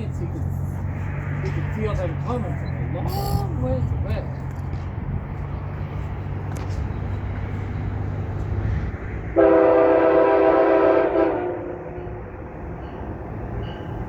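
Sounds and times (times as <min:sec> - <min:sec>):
train rumbling: 0:00.0 - 0:14.0
train horn blast: 0:09.4 - 0:12.3.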